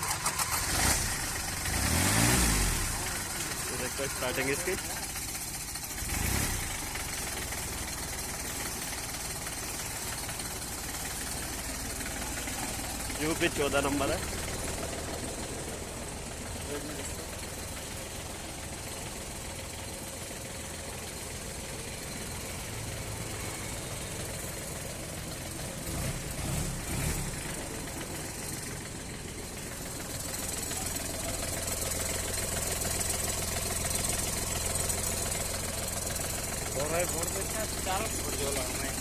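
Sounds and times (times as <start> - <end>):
tractor diesel engine idling: 0.0 - 39.0.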